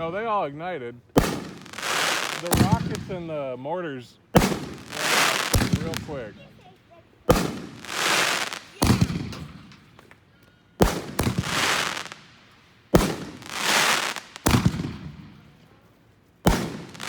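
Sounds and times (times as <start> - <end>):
firework hissing crackle: 1.2 - 3.2, 4.4 - 6.4, 7.3 - 9.3, 10.8 - 15.1, 16.4 - 17.0.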